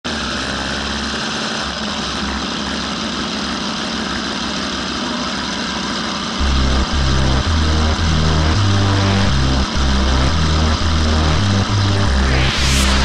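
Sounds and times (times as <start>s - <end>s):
motorcycle engine idling: 0.4s - 6.4s.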